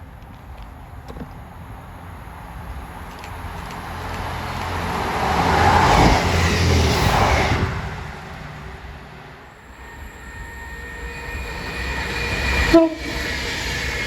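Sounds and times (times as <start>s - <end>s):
vehicle passing close by: 3.8s - 9.1s.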